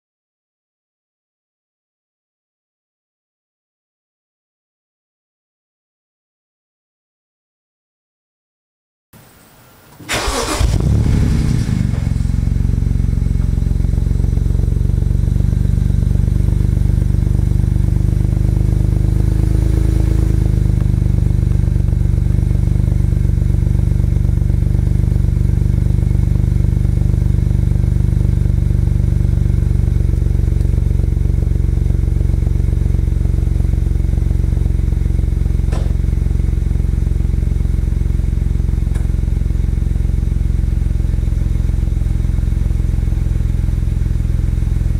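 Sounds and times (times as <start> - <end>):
car engine starting and idling: 10.0 - 44.9.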